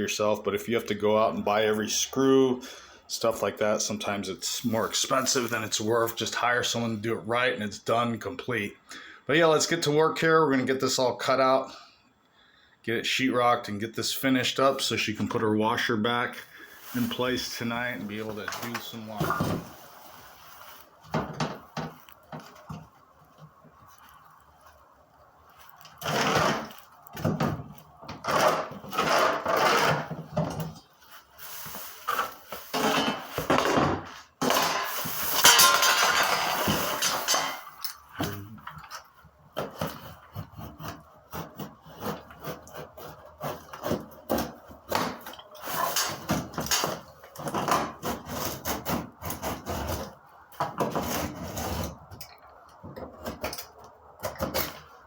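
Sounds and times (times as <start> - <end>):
knife scraping drywall: 28.2 - 30.2, 39.7 - 50.2, 50.8 - 52.0.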